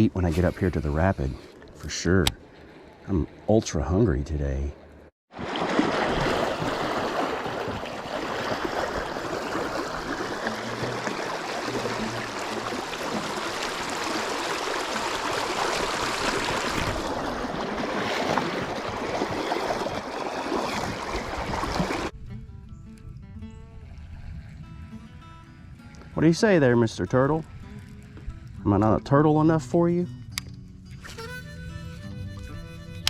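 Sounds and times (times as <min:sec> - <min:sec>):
creek water rushing: 0:05.4 - 0:22.1.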